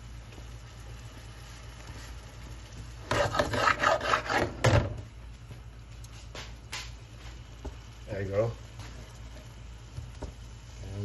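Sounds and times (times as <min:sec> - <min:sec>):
steady low hum: 0:00.0 - 0:11.0
utensil scraping in a pan: 0:01.4 - 0:05.1.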